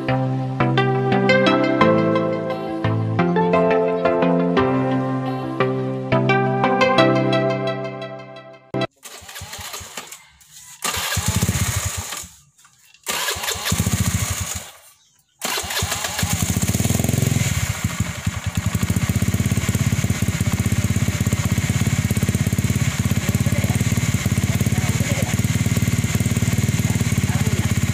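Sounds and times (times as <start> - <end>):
scooter engine running: 8.8 - 27.9.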